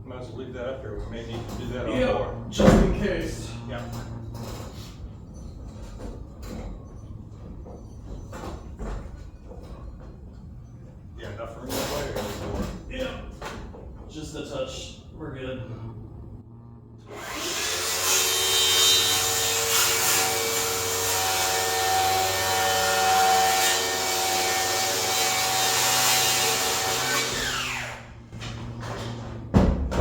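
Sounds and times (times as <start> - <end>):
power tool cutting wood: 17.0 - 28.3.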